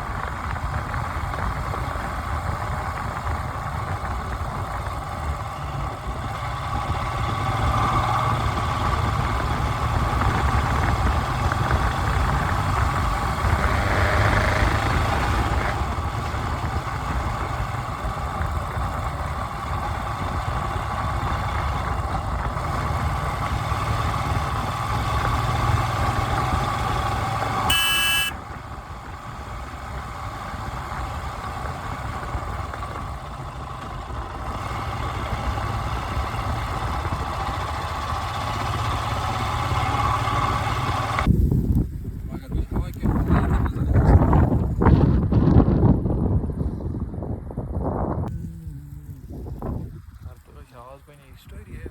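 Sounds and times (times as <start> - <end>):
road noise: 0.0 - 51.9
vehicle engine running: 0.0 - 51.9
brief high-pitched tone: 27.7 - 28.4.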